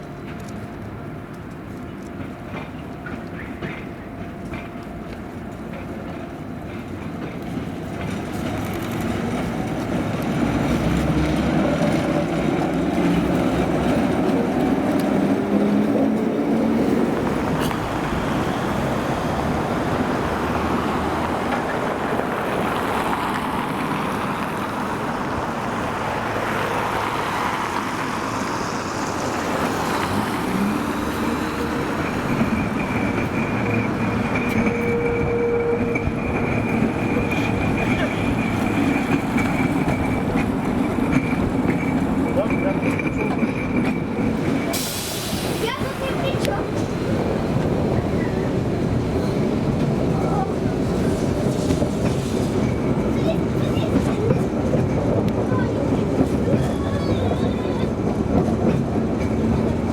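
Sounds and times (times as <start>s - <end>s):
tram rolling on rails: 0.0s - 59.9s.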